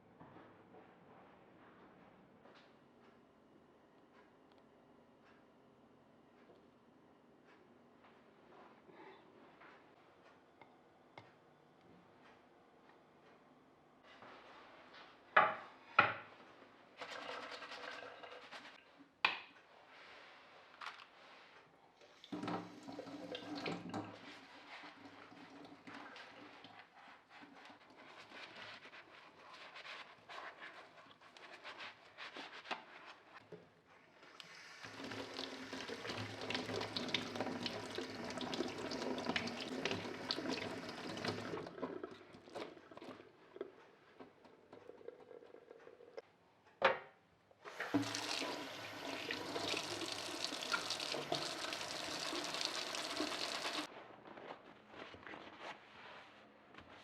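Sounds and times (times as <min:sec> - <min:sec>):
tap running into sink: 0:47.7 - 0:53.9.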